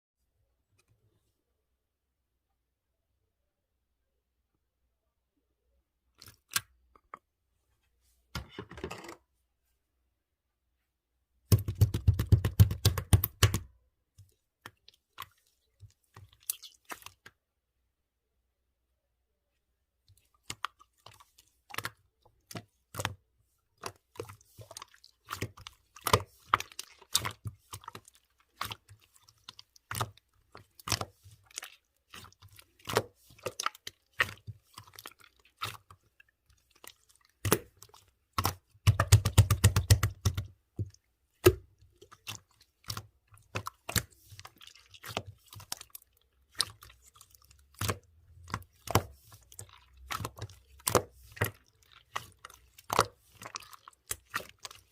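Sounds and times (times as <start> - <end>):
slime squished by hand: 23.8 - 54.9
wet clicks and pops: 37.4 - 42.3.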